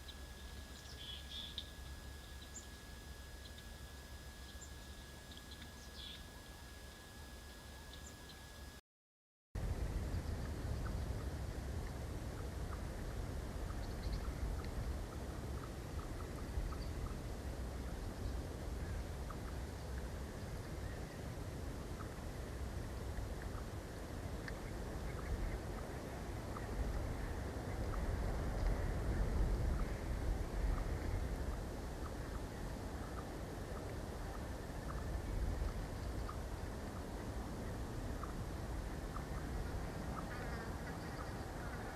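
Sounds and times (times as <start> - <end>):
small birds chirping: 0.0 - 8.5, 13.6 - 17.2
wind rumbling on microphone: 9.6 - 41.9
wind buffeting microphone: 24.8 - 32.9.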